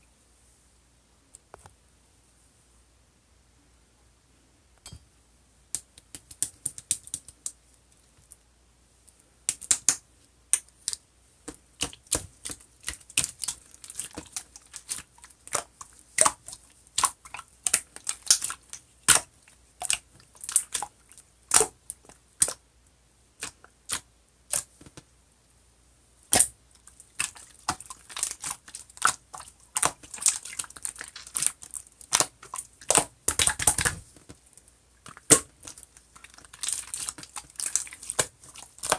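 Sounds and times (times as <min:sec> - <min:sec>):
slime clicking and popping: 0:09.5 - 0:11.0, 0:11.8 - 0:20.9, 0:21.5 - 0:22.6, 0:26.3 - 0:34.0, 0:35.1 - 0:38.9.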